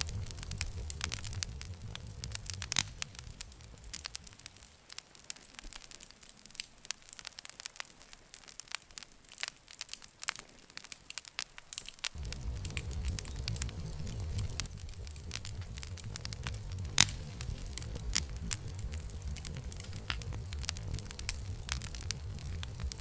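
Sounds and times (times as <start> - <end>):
low rumble: 0.0 - 4.6, 12.2 - 23.0
campfire crackling and popping: 0.0 - 23.0.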